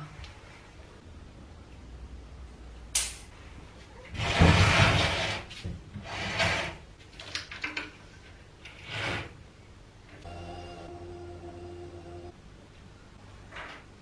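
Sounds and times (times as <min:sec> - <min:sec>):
furniture scraping across floor: 0:04.2 - 0:06.8, 0:08.8 - 0:09.4.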